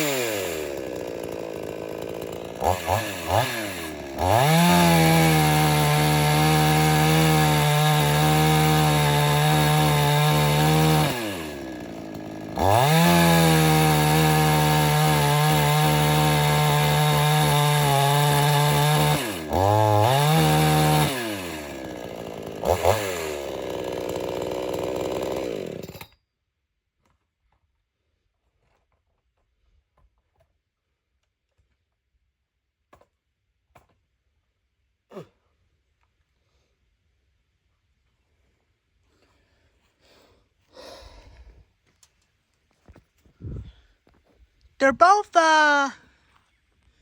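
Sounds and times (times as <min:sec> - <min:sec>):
chainsaw cutting wood: 0:00.0 - 0:26.2.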